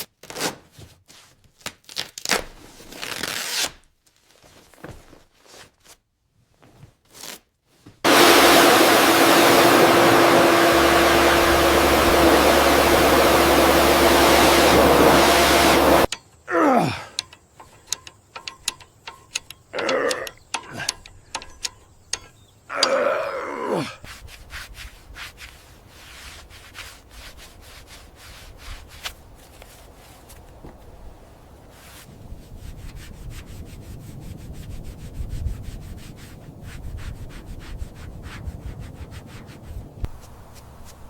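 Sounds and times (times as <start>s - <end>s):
loud sound falling in pitch: 8.1s - 16.1s
rubbing and scraping: 8.1s - 16.1s, 24.0s - 30.5s, 31.7s - 41.0s
sharp clicks: 17.1s - 23.0s.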